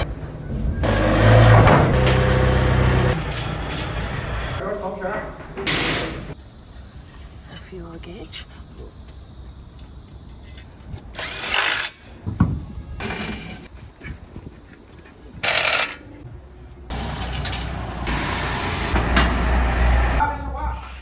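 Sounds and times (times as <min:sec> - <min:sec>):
backhoe engine rumble: 0:00.0 - 0:04.6, 0:16.9 - 0:20.3
loud bursts of noise: 0:16.9 - 0:20.2.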